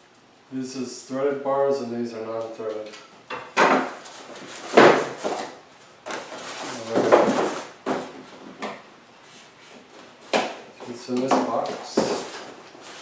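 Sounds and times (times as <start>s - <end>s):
packaging scraping and rustling: 4.0s - 8.2s.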